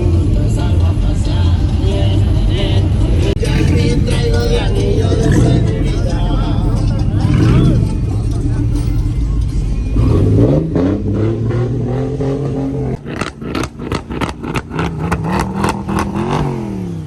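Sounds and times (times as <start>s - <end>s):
vehicle engine revving: 0.0s - 17.0s
sharp exhaust cracks: 13.0s - 17.0s.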